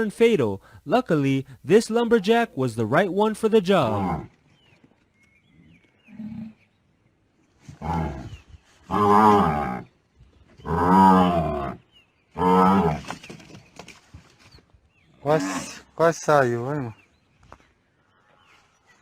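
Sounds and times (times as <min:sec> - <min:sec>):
animal bellowing: 0:03.8 - 0:04.4, 0:07.7 - 0:09.9, 0:10.6 - 0:13.1, 0:15.2 - 0:15.9.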